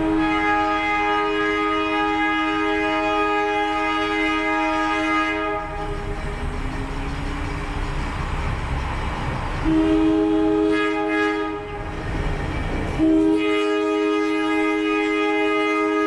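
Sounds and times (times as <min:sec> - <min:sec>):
locomotive air horn blasts: 0:00.0 - 0:06.4, 0:09.6 - 0:11.9, 0:13.0 - 0:16.0
train rumble: 0:00.0 - 0:16.0.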